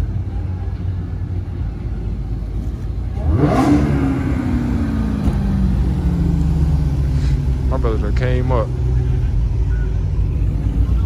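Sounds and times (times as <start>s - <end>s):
car engine revving: 2.6s - 11.0s.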